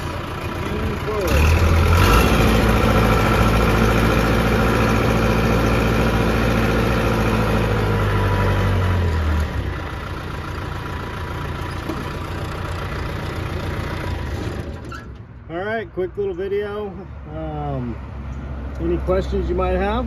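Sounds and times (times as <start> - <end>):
rough machine noise: 0.0 - 15.2
diesel engine running: 0.0 - 15.9.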